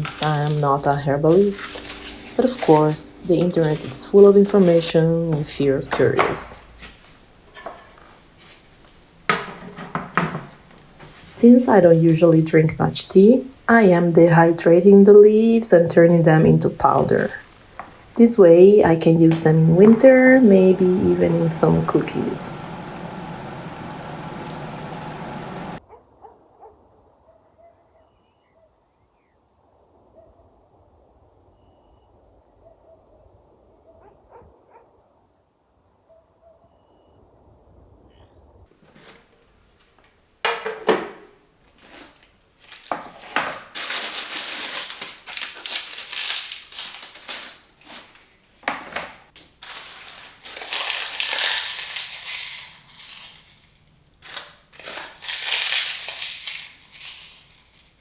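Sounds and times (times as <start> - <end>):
dried leaves crushed crackling: 41.8 - 42.9, 43.6 - 48.3, 49.4 - 58.0.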